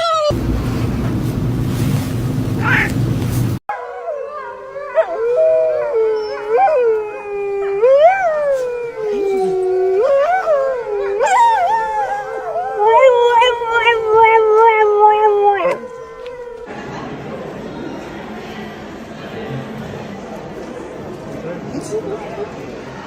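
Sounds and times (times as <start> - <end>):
dog howling: 2.6 - 3.0, 3.7 - 16.7.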